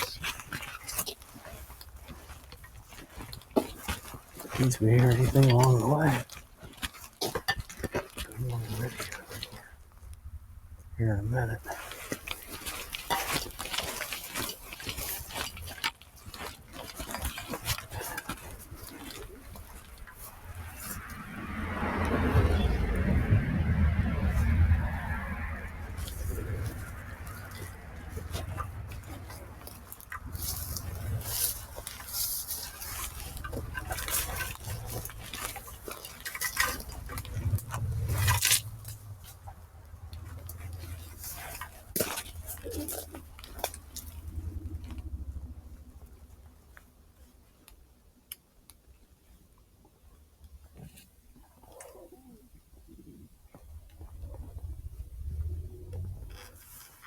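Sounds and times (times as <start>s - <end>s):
footsteps crunching dry leaves: 0.0s - 7.2s, 24.2s - 39.2s
footsteps: 11.7s - 44.1s.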